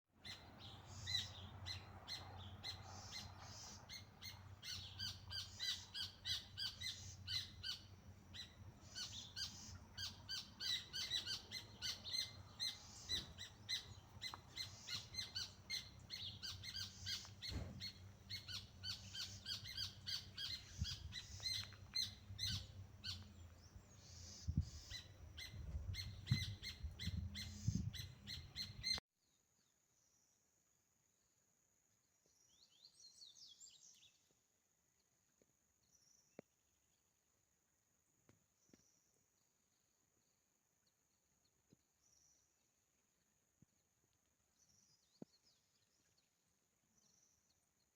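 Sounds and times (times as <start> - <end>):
birds chirping: 0.2 - 29.0.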